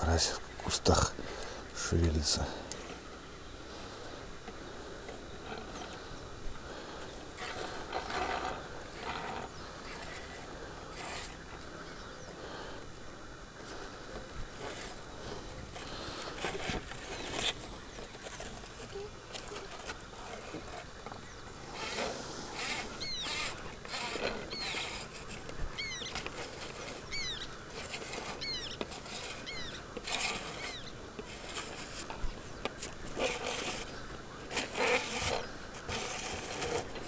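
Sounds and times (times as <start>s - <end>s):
bird chirping: 11.8s - 12.4s, 20.9s - 21.8s, 22.5s - 23.7s, 24.3s - 29.9s, 30.5s - 31.0s
rustling and patter: 13.6s - 37.0s.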